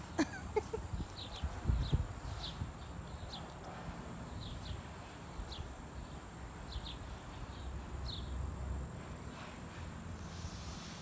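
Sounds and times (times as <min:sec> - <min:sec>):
small bird chirping: 0:00.9 - 0:03.6.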